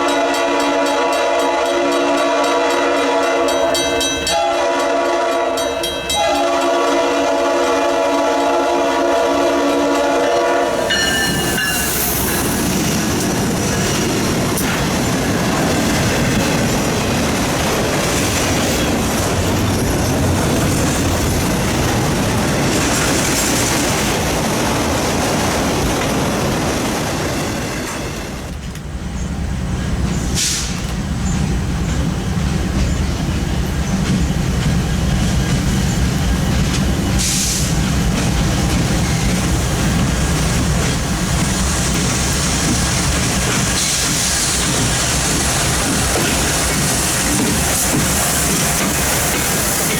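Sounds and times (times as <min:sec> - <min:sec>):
train horn: 0:00.0 - 0:12.1
freight train wheels rolling: 0:00.0 - 0:49.9.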